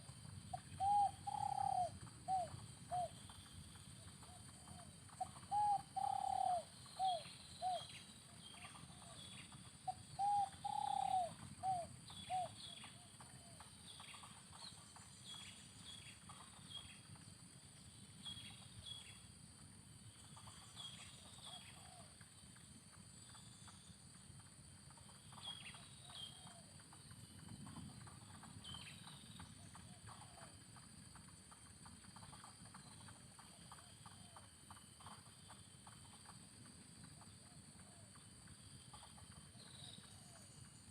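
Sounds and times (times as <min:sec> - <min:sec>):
small birds chirping: 0:00.0 - 0:19.4, 0:24.9 - 0:30.6, 0:32.2 - 0:40.9
dove cooing: 0:00.5 - 0:03.2, 0:04.2 - 0:07.9, 0:09.8 - 0:13.6, 0:21.5 - 0:22.1.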